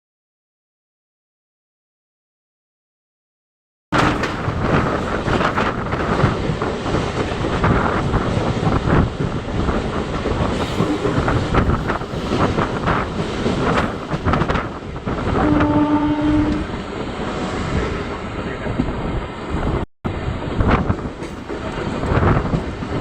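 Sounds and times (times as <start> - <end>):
train horn: 15.4 - 16.7.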